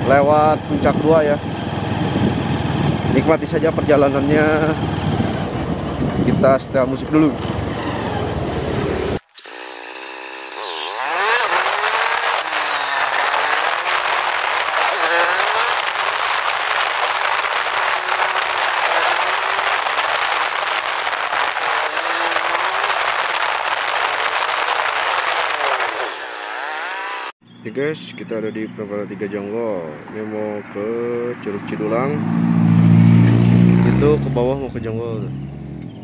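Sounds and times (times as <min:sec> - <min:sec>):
motorcycle engine running: 0:09.9 - 0:27.3.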